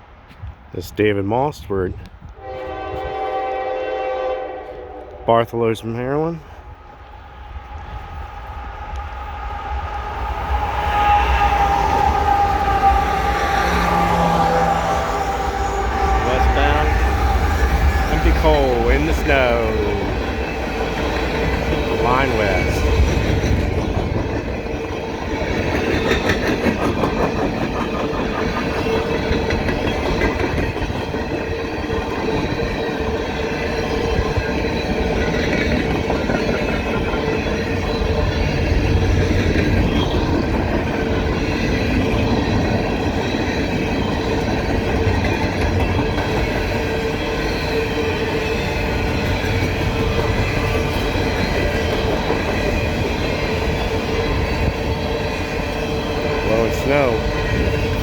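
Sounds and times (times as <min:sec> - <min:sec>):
train rumble: 0:00.0 - 0:58.0
train wheels clicking over rail joints: 0:15.4 - 0:58.0.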